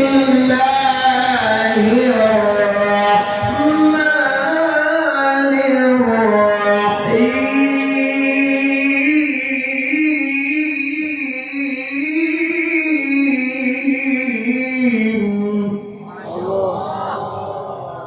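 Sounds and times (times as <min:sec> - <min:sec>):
man reciting melodically: 0:00.0 - 0:18.0.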